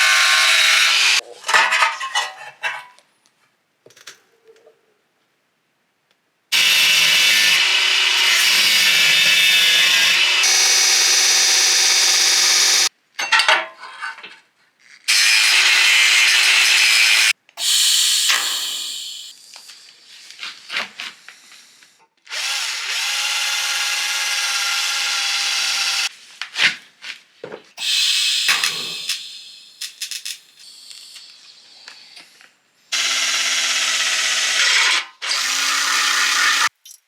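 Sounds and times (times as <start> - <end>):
power tool running: 0.0 - 1.2, 6.6 - 12.9, 15.1 - 19.3, 22.3 - 26.1, 27.8 - 30.0, 32.9 - 36.7.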